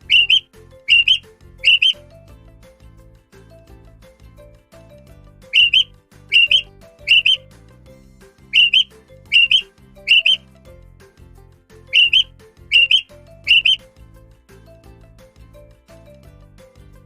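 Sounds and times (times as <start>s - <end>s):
bird two-note calls: 0.0s - 2.0s, 5.5s - 7.4s, 8.6s - 10.4s, 11.9s - 13.8s
soft background music: 0.0s - 17.0s.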